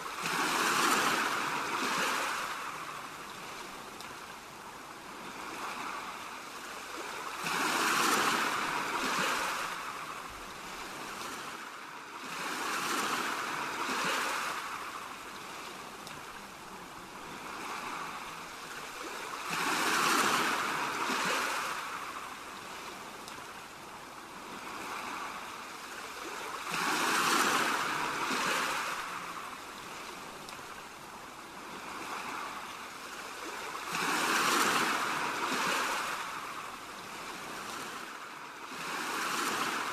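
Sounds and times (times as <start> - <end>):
ocean waves washing in: 0.0 - 39.9.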